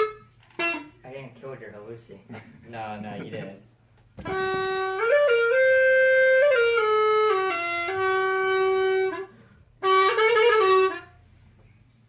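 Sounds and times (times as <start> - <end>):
wind instrument playing slow tune: 0.0 - 1.0, 4.2 - 11.3.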